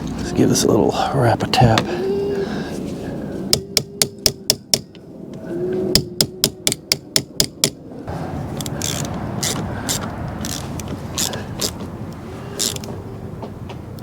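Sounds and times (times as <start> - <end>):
hammer tapping on metal: 6.0 - 7.8.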